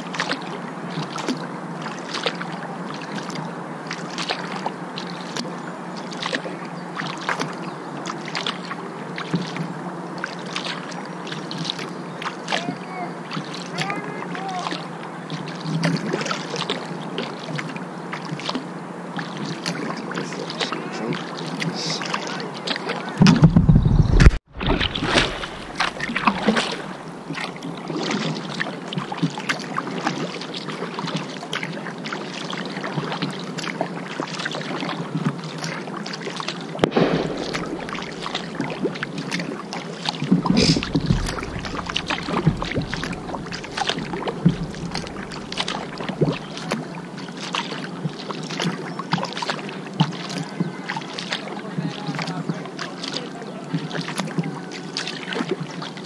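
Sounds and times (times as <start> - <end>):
paddle splashes: 0.0 - 56.0
water sloshing against hull: 0.0 - 56.0
loud low rumble: 36.8 - 38.9, 40.4 - 46.8.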